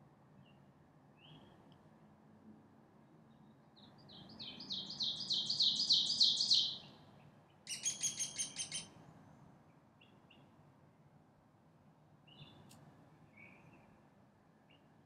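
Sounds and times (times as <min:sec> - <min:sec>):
songbird singing: 0:00.4 - 0:01.8, 0:03.3 - 0:10.6, 0:12.2 - 0:15.0.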